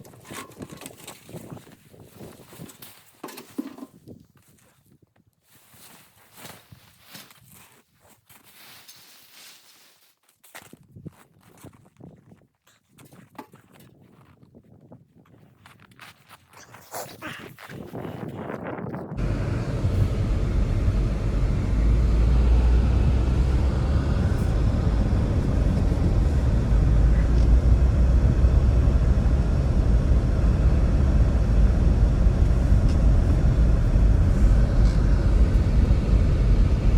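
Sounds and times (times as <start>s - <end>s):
gusts buffeting microphone: 17.7s - 36.9s
strong blizzard wind: 19.2s - 36.9s.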